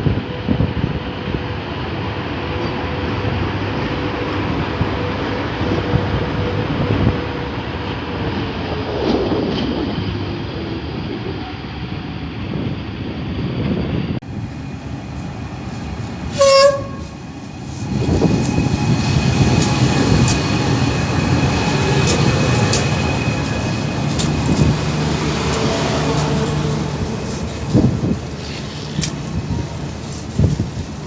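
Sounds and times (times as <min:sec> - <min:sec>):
train wheels rumbling on rails: 0:00.0 - 0:31.0
train knocks: 0:15.2 - 0:31.0
train horn toot: 0:16.3 - 0:17.2.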